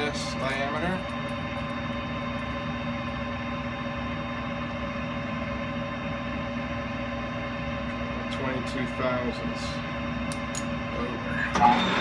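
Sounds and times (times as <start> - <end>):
metal lathe humming: 11.0 - 12.0.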